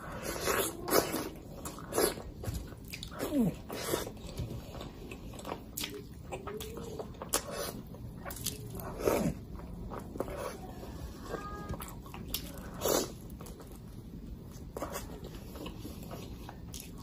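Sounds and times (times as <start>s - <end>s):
wet chewing and lip smacks: 0.5s - 10.4s.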